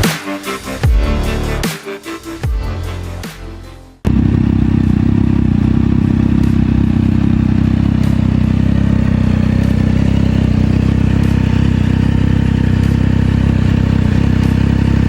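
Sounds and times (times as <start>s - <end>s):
motorcycle engine idling: 4.1s - 15.0s.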